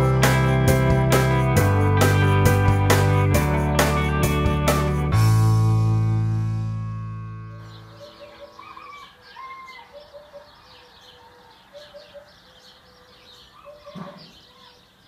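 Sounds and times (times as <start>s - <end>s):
faint birds chirping: 7.2s - 15.0s.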